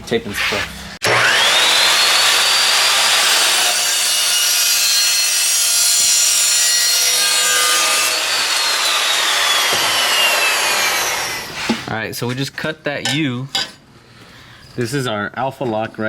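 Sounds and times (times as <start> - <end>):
power saw cutting tubing: 0.4 - 11.9.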